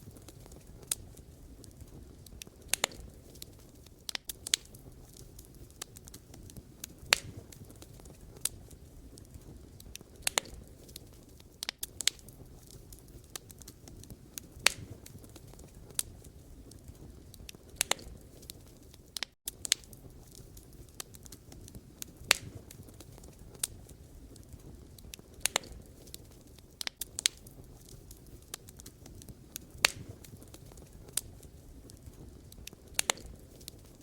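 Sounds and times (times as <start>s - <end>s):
burning logs popping: 0.0s - 34.0s
low rumble of flames: 0.0s - 34.0s.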